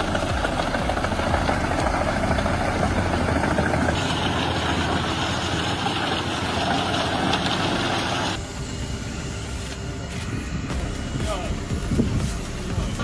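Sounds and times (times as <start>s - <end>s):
heavy machinery engine running: 0.0s - 10.0s.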